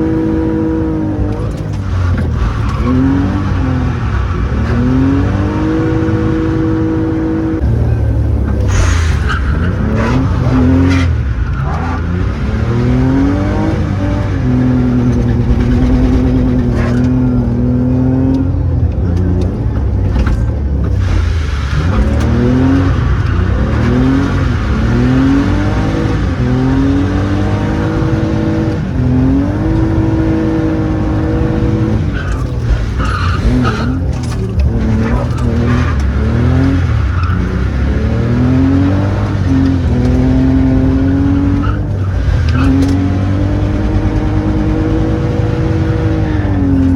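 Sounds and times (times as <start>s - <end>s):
car engine accelerating hard: 0.0s - 46.9s
tyre squeal: 8.4s - 17.9s, 21.0s - 46.9s.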